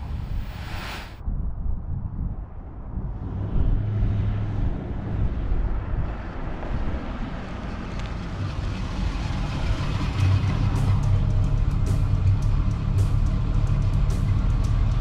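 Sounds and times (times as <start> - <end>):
car exhaust rumble: 3.0 - 15.0.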